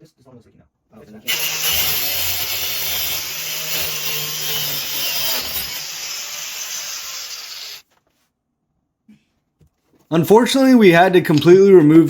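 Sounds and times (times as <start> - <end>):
power saw rasping through pipe: 1.3 - 7.8.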